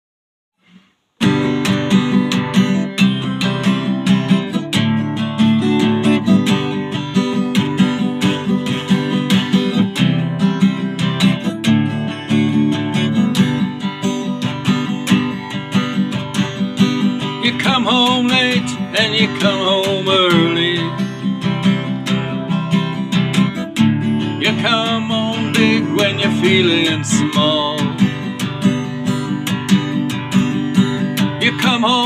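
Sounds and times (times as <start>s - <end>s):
acoustic guitar strumming: 0.6s - 32.0s.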